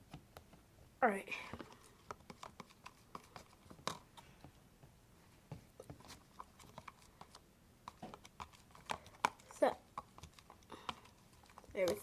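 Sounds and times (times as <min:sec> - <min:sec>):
wet clicks of slime being stirred: 0:05.8 - 0:12.0.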